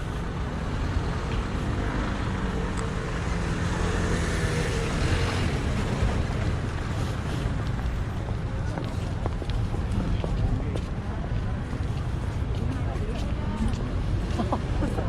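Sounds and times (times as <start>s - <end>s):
road traffic noise: 0.0s - 15.0s
vehicle passing nearby: 0.6s - 7.9s.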